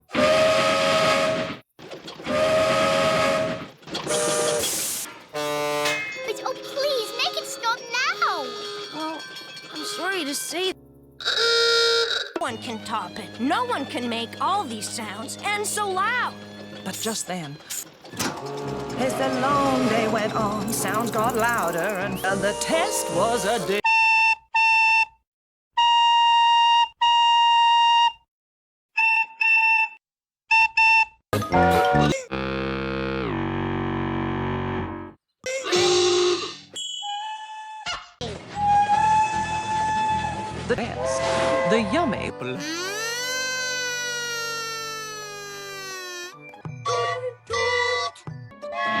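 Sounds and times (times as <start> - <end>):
low horn: 0.1 - 1.6, 2.3 - 4.7, 5.3 - 6.0, 11.2 - 12.3, 18.2 - 24.0, 31.6 - 35.1, 38.7 - 42.1
steam train whistle: 0.1 - 1.6, 2.2 - 6.0, 11.3 - 12.2, 18.2 - 25.0, 38.6 - 42.0
whistle blasts: 0.1 - 1.6, 2.2 - 4.8, 11.3 - 12.4, 22.2 - 25.2, 25.8 - 28.2, 29.0 - 31.9, 36.8 - 37.6
steam hissing: 2.3 - 5.4.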